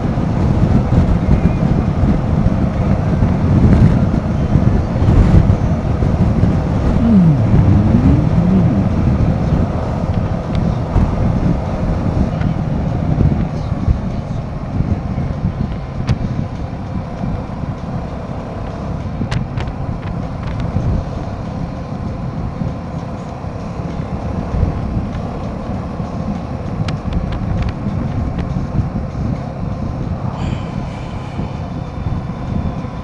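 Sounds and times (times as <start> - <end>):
wind and road noise: 0.0 - 33.0
motorcycle engine running: 3.2 - 17.8.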